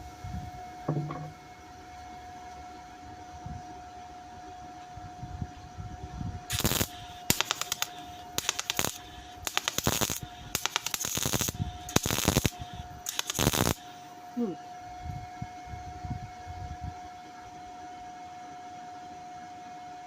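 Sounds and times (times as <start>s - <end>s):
welder crackling: 6.5s - 14.1s.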